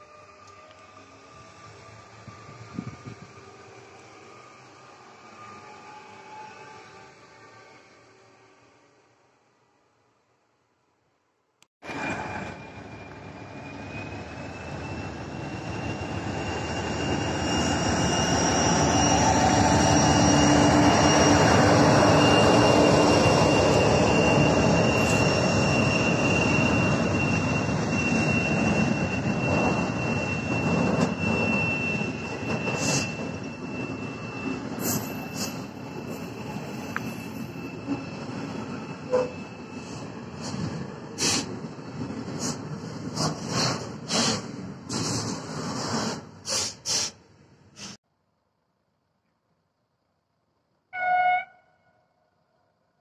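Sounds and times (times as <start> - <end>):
locomotive engine: 11.8 - 47.9.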